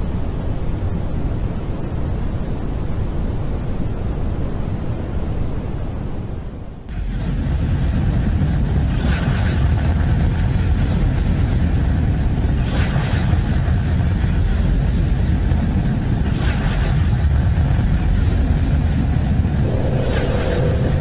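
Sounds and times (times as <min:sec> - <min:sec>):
deep rumbling roar: 0:19.6 - 0:21.0.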